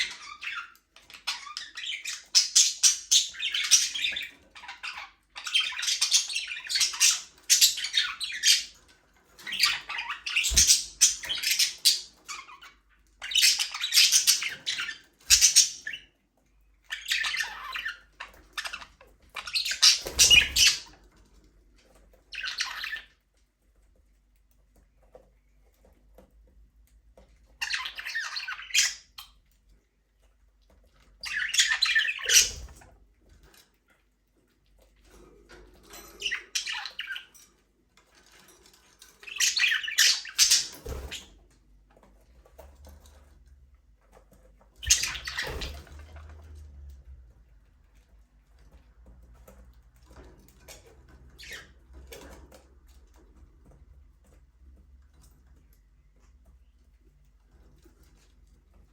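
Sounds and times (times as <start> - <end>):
budgerigars chattering and squawking: 0.0 - 16.2, 16.8 - 21.1, 22.3 - 23.2, 27.6 - 29.4, 31.2 - 32.8, 35.9 - 37.5, 39.1 - 41.4, 44.8 - 46.5, 51.3 - 52.1.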